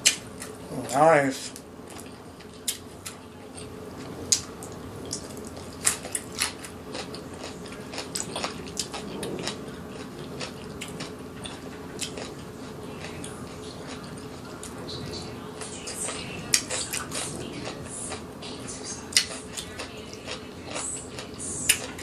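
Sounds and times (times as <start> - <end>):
biting and chewing food: 0.0 - 22.0
low hum: 0.0 - 22.0.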